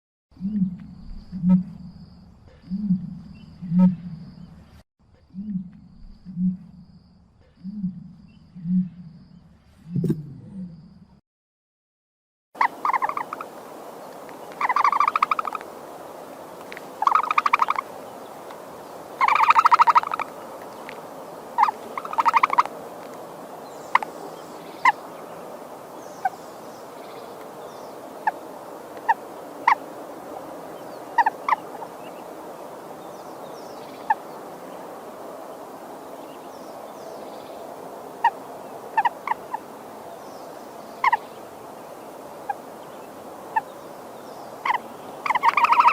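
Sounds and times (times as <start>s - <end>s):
fowl rattling gobble calls: 12.6s - 13.5s, 14.5s - 15.7s, 16.6s - 18.6s, 19.2s - 21.0s, 21.6s - 22.7s, 28.2s - 29.9s, 31.1s - 32.0s, 38.2s - 39.7s, 41.0s - 41.3s, 44.6s - 45.9s
fowl clucking: 19.2s - 20.2s, 31.2s - 31.9s, 44.6s - 45.9s.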